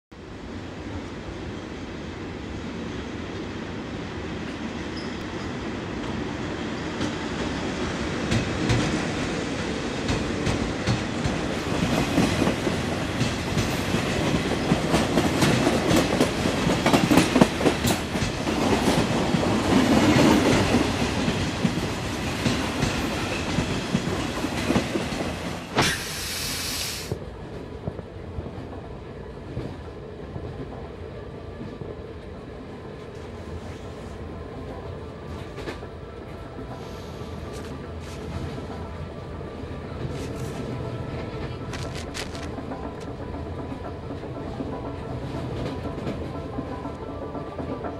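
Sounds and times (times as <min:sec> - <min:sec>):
train rumble with wheel clicks: 0:04.4 - 0:47.9
loud hiss: 0:25.7 - 0:27.2.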